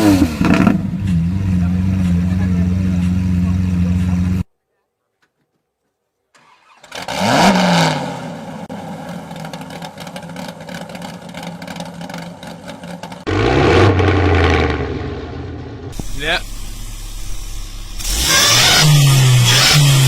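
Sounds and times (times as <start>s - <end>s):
car engine starting and idling: 0.0s - 4.4s, 6.4s - 20.0s
second engine revving: 0.0s - 4.4s, 6.6s - 8.9s, 13.1s - 20.0s.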